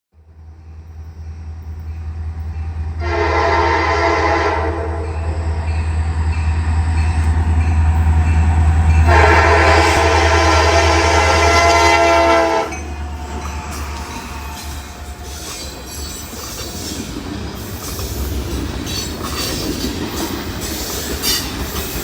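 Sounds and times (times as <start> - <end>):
locomotive rumble: 0.2 - 22.0
locomotive horn blasts: 3.0 - 5.3, 9.0 - 13.2.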